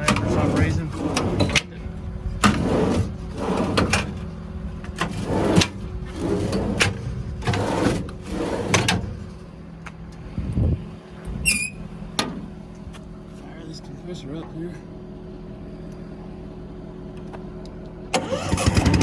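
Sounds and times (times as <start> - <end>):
steady low hum: 0.0 - 18.1.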